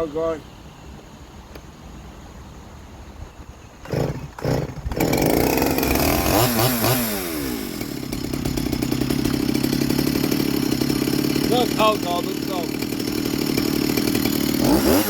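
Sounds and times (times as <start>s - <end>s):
chainsaw engine revving and running: 3.8s - 15.0s
starter cord pulls: 3.8s - 15.0s.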